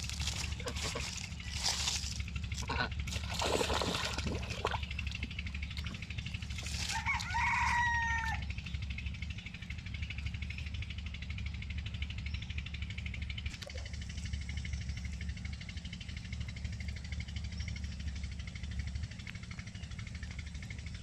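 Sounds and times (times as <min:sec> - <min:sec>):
harsh poultry calls: 0:00.4 - 0:01.7, 0:02.6 - 0:03.0, 0:06.7 - 0:08.4
rooster crowing: 0:06.7 - 0:08.5.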